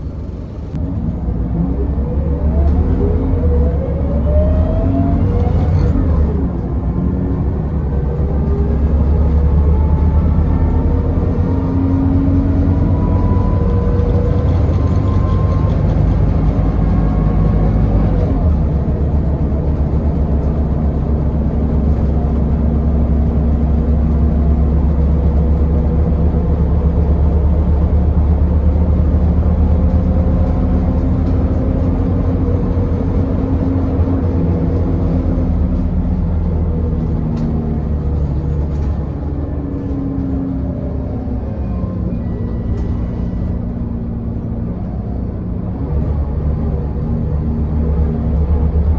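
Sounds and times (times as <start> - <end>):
bus diesel engine pulling: 0.0 - 48.9.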